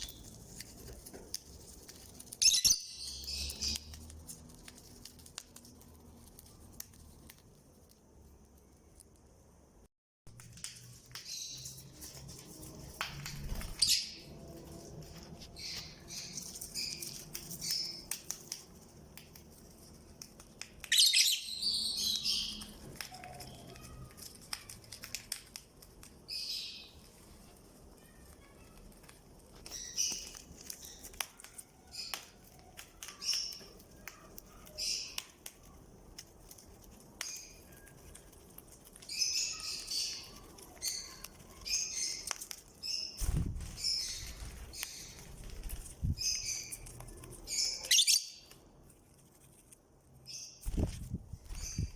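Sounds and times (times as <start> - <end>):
lovebirds chirping: 0.0 - 5.0, 10.9 - 18.6, 20.7 - 24.3, 26.3 - 35.8, 36.5 - 48.7, 50.2 - 51.9.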